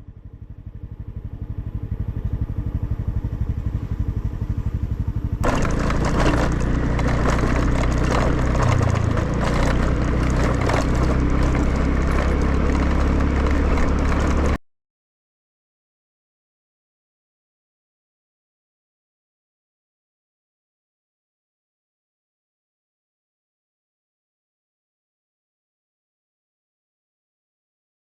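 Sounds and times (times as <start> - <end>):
moped engine running: 0.0 - 14.6.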